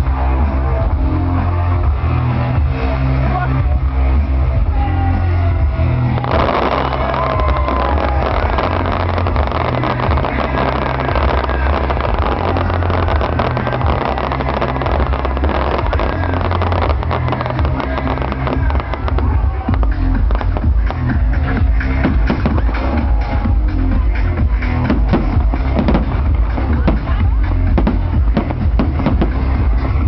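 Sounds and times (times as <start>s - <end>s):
loud music with heavy bass: 0.0s - 30.0s
fireworks crackling: 6.1s - 30.0s.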